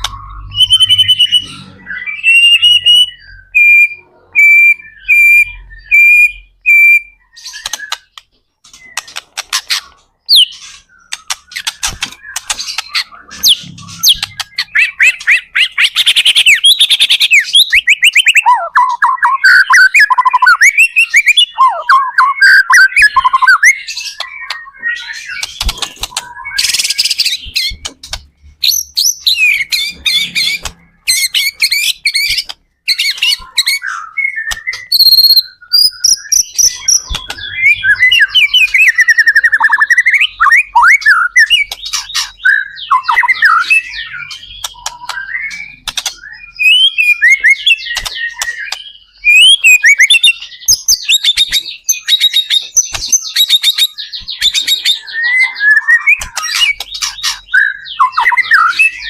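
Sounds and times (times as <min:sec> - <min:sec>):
bird singing whistles and trills: 0:00.0 - 0:59.0.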